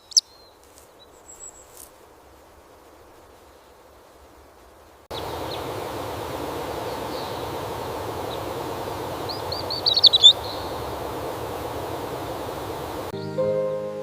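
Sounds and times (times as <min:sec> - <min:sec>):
small bird chirping: 0:00.0 - 0:01.9, 0:09.2 - 0:10.9
outdoor ambience hiss: 0:00.0 - 0:14.0.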